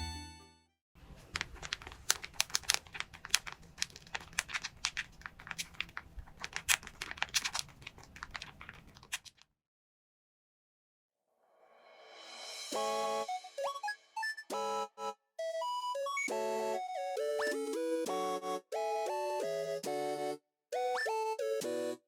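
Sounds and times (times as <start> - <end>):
paper crinkling and crackling: 1.0 - 9.4.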